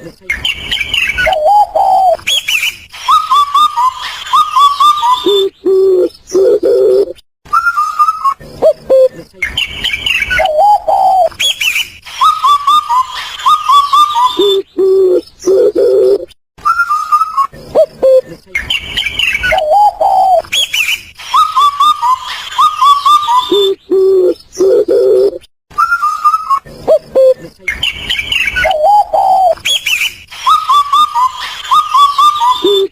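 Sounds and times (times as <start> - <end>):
bird chirps: 0.2 - 32.9
high trilling bird calls: 0.2 - 32.9
low repeated bird notes: 0.3 - 12.6, 13.7 - 21.0, 26.0 - 31.2.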